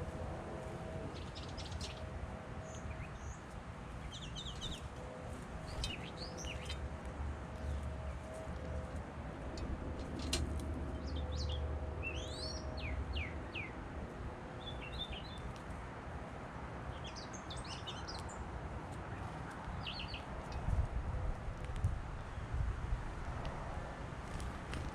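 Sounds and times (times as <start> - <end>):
small birds chirping: 1.1 - 9.0, 10.9 - 13.8, 14.6 - 15.6, 16.9 - 20.8.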